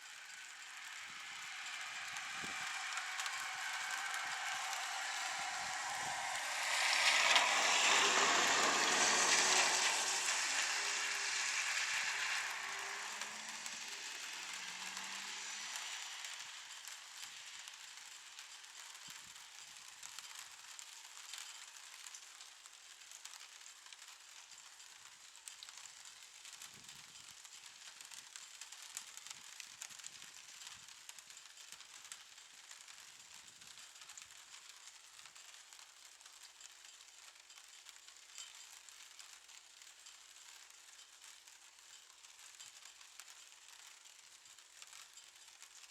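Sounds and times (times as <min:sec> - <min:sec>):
faint steady hiss: 0:00.0 - 0:45.9
small ticks: 0:00.1 - 0:45.9
diesel locomotive running: 0:01.2 - 0:15.5.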